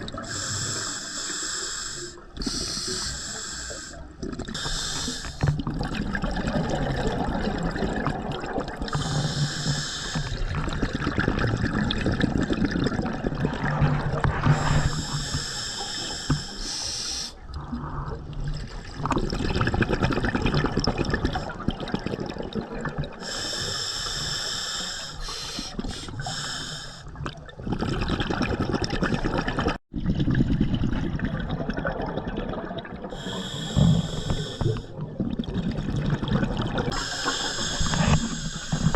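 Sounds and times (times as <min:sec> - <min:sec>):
hissing inhale through regulator: 0:00.2 - 0:05.5, 0:08.9 - 0:10.6, 0:14.4 - 0:17.6, 0:23.2 - 0:27.2, 0:33.1 - 0:35.0, 0:36.9 - 0:38.9
gurgle of exhaled bubbles: 0:04.1 - 0:15.4, 0:17.6 - 0:23.3, 0:26.1 - 0:38.9.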